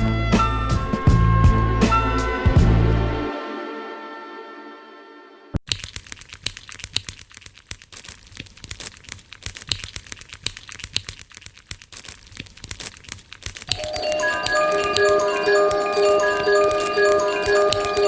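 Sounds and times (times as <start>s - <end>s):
chiming mallet music notes: 13.8s - 18.0s.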